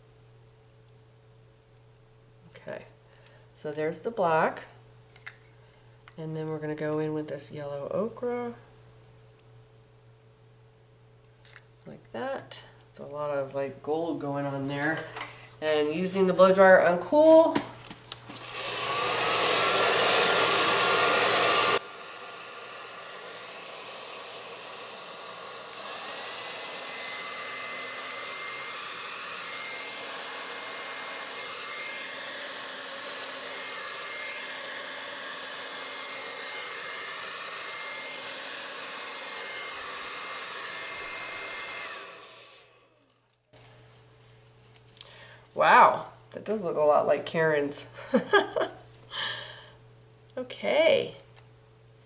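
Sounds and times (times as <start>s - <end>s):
hair dryer blowing: 14.3s - 43.4s, 47.7s - 49.6s.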